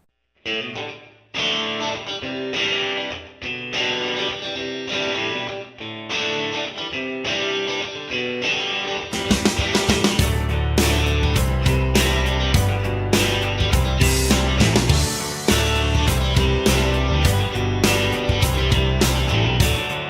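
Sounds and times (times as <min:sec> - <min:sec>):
plucked guitar music: 0:00.5 - 0:20.0
drums: 0:09.1 - 0:20.0.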